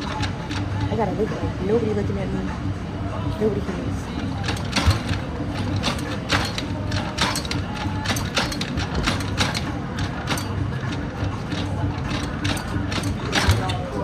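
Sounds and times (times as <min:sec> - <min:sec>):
mechanical clicks and clatter: 0:04.2 - 0:14.0.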